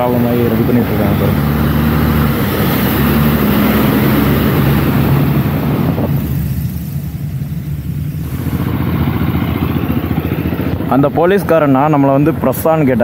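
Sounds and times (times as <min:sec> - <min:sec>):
vehicle engine running: 0:00.0 - 0:13.0
heavy rain hissing: 0:07.9 - 0:09.3.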